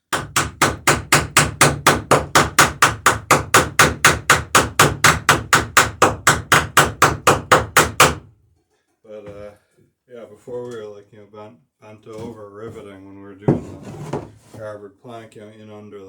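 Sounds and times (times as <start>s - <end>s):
hammer striking rivet: 0.2s - 8.3s.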